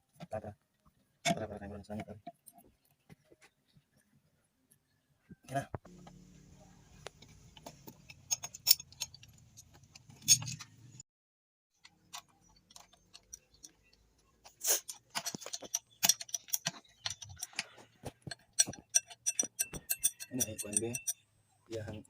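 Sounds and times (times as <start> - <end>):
metal parts clinking: 7.9 - 11.0, 12.1 - 21.2.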